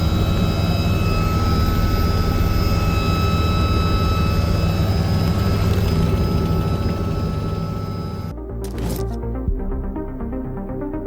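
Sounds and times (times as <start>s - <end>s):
helicopter rotor thrum: 0.0s - 9.2s
turbine whine: 0.0s - 9.2s.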